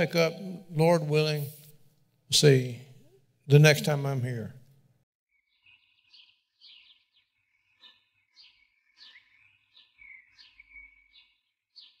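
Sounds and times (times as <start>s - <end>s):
faint bird chirping: 5.3s - 12.0s.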